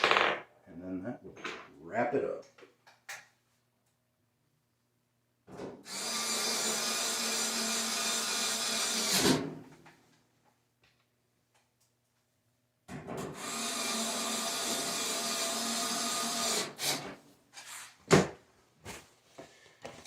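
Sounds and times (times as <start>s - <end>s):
power drill driving a screw: 5.9s - 9.4s, 13.4s - 17.1s.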